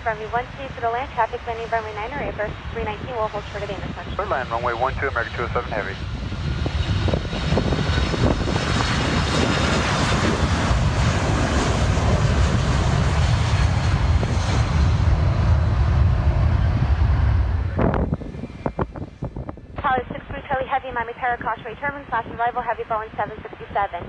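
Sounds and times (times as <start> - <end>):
jet airliner engines roaring: 0.0 - 24.0.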